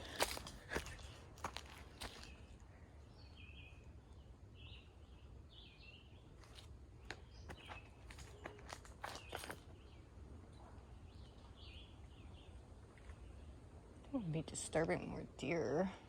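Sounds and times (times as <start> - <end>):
footsteps on trail: 0.0 - 2.6, 6.4 - 9.8.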